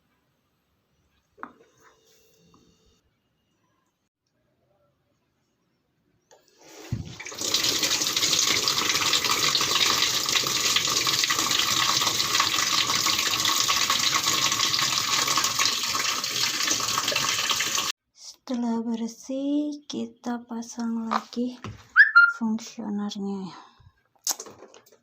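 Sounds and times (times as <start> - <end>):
running water splashing: 6.6 - 17.9.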